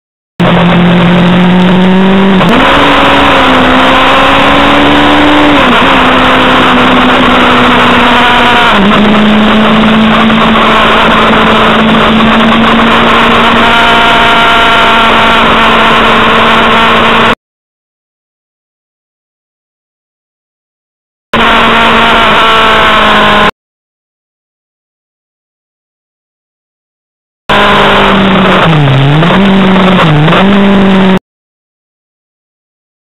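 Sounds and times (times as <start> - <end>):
motorcycle engine at speed: 0.4 - 17.4, 21.4 - 23.5, 27.5 - 31.2.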